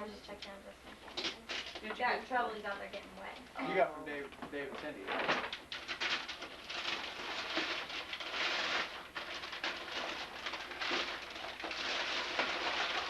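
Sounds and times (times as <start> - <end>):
paper rustling and crinkling: 4.8 - 13.0.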